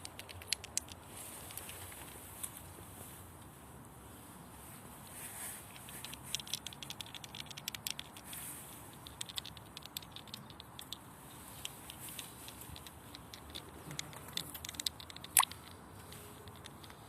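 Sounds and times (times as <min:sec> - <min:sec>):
squirrel clicking: 0:00.0 - 0:02.1, 0:05.6 - 0:17.0
soft rustles: 0:00.9 - 0:07.4, 0:08.0 - 0:09.4, 0:11.2 - 0:17.0.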